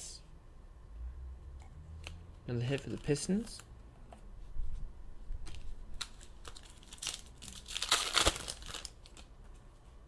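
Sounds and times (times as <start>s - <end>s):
wrapper crinkling and tearing: 2.6s - 3.6s, 5.4s - 9.3s.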